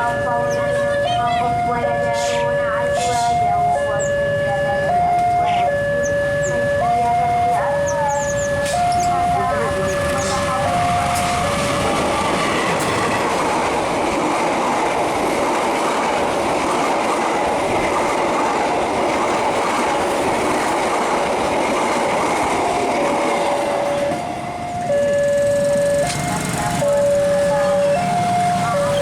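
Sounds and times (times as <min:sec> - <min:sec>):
electronic two-tone alarm: 0:00.0 - 0:12.7, 0:23.6 - 0:29.0
train wheel and rail clatter: 0:07.5 - 0:29.0.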